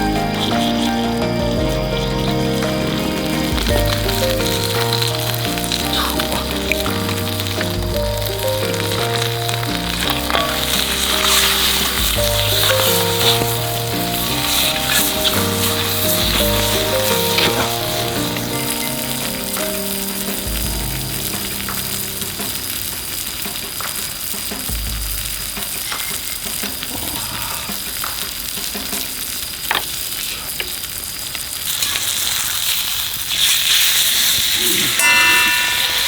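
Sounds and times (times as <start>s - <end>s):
steak sizzling in a pan: 0.0s - 36.0s.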